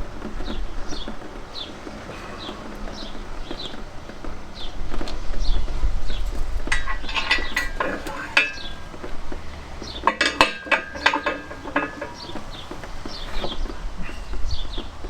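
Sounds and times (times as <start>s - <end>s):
metal clinking and clanking: 6.2s - 14.8s.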